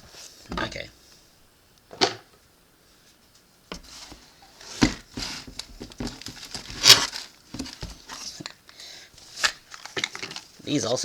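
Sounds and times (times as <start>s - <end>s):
light knocks of packages: 3.7s - 8.6s
plastic wrappers rustling: 3.9s - 11.0s.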